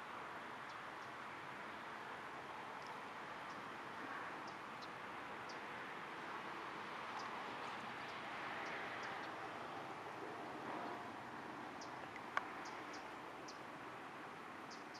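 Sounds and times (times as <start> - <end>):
highway traffic noise: 0.0 - 14.9
faint high ticks: 2.8 - 3.6, 11.8 - 13.6.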